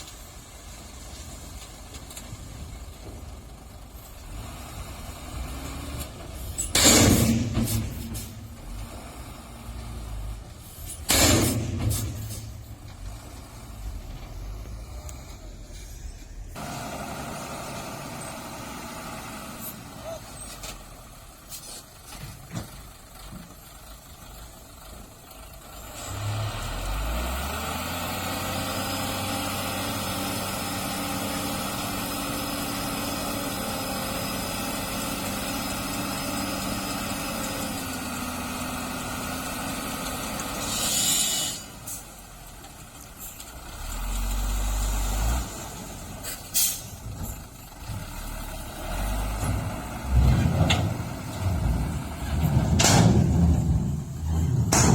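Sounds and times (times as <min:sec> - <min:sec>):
low rumbles: 0:00.0 - 0:16.6, 0:46.8 - 0:54.9
heavy truck engine running: 0:00.0 - 0:54.9
air brakes hissing: 0:06.4 - 0:08.6, 0:10.6 - 0:12.8, 0:21.4 - 0:22.1, 0:40.5 - 0:42.2, 0:46.2 - 0:47.0
sharp knocks: 0:54.6 - 0:54.9.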